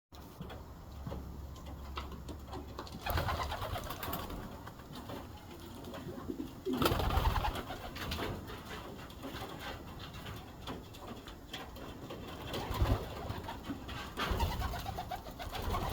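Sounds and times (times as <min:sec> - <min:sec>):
pigeons cooing: 0:03.0 - 0:08.9, 0:12.5 - 0:15.9.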